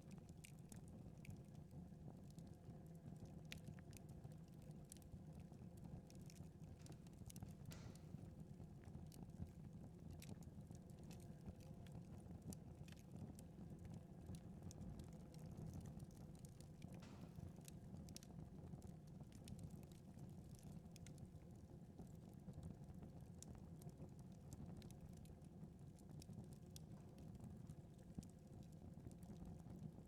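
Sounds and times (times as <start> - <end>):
wood fire crackling: 2.4 - 29.6.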